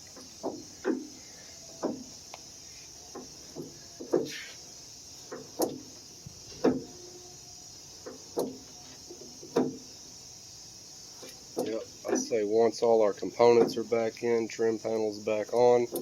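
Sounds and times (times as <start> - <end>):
car door check clicking: 5.2 - 7.1, 8.0 - 9.9.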